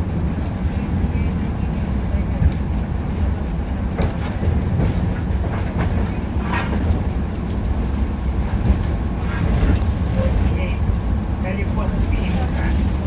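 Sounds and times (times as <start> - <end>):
tram wheels rumbling on rails: 0.0 - 13.0.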